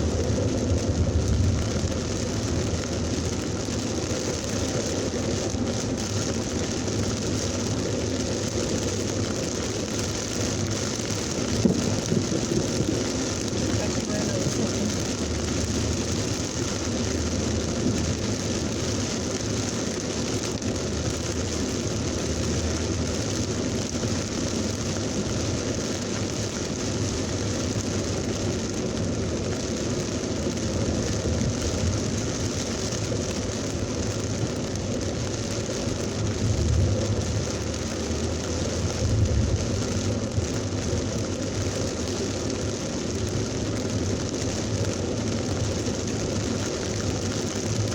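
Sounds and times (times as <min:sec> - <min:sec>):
heavy rain pouring: 0:00.0 - 0:47.9
low thunder rumbles: 0:11.2 - 0:18.2, 0:36.1 - 0:40.4.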